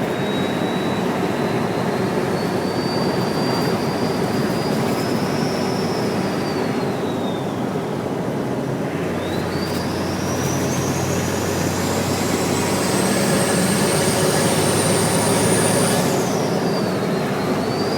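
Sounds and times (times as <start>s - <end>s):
diesel engine running: 8.9s - 17.9s.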